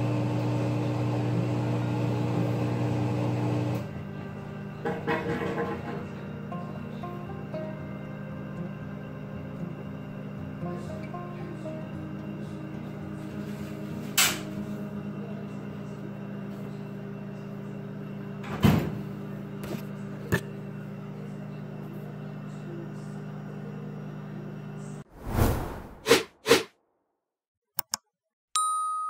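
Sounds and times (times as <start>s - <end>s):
washing machine motor hum: 0.0s - 25.0s
washing machine clatter: 4.8s - 6.2s.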